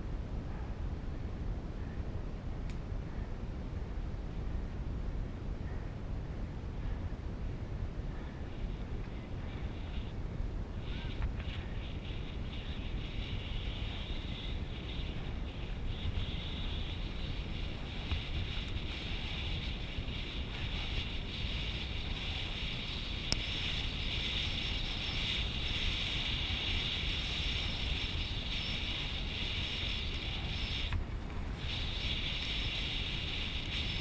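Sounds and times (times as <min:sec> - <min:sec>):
constant hiss: 0:00.0 - 0:34.0
wind rumble on microphone: 0:00.0 - 0:34.0.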